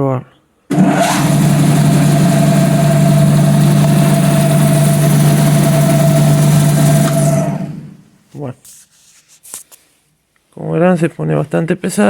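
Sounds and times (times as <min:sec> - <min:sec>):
alternator humming and whining: 0:00.7 - 0:08.2.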